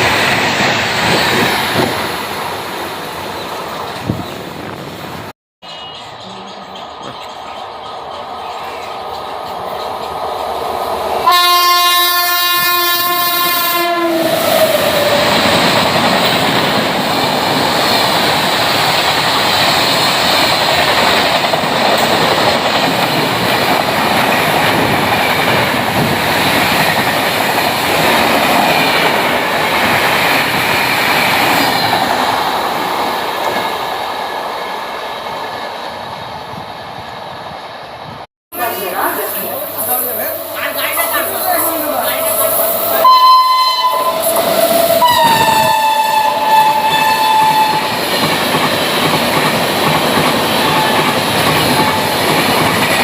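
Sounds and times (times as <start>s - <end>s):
train rushing past: 0.0s - 53.0s
train horn: 11.2s - 14.8s, 40.9s - 47.9s.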